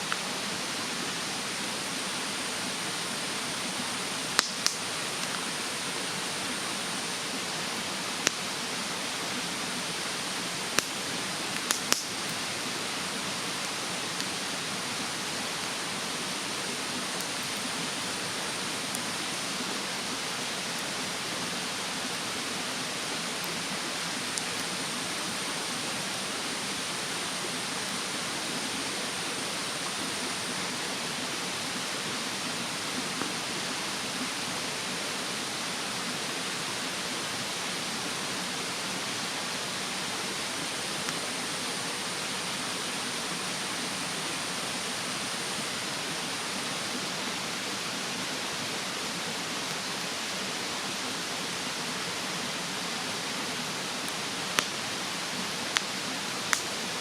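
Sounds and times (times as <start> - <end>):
mountain stream rushing: 0.0 - 57.0
bonfire crackling and popping: 4.3 - 5.5, 8.1 - 8.5, 9.6 - 14.4, 16.3 - 19.4, 23.4 - 25.4, 54.0 - 56.9.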